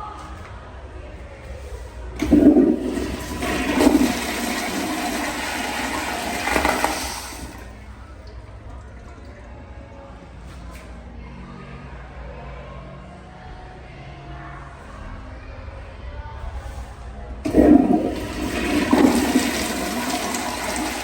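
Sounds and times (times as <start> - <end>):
toilet flushing: 2.2 - 9.5, 17.4 - 21.0.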